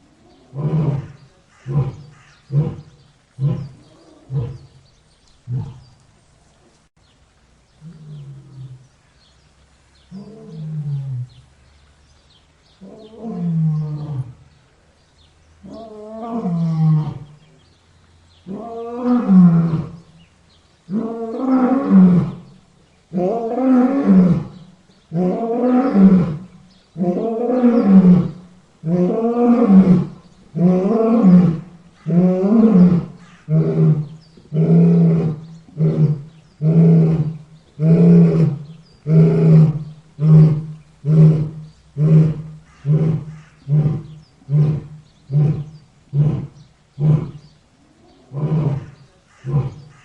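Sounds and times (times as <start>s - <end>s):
lion roaring: 0.2s - 4.8s, 23.1s - 47.4s, 48.0s - 50.0s.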